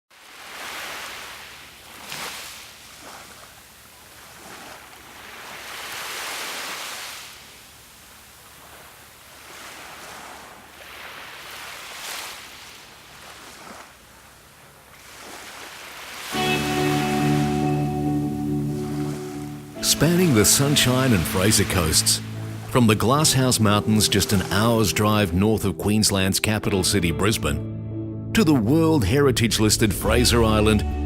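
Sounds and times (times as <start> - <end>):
ocean waves breaking: 0.1 - 27.6
music: 16.4 - 31.0.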